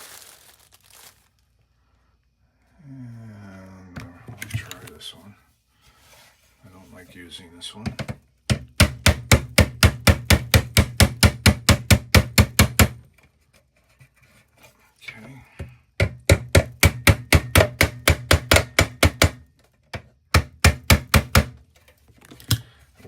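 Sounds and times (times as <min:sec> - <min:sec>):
hammer tapping on steel: 0:16.0 - 0:19.4.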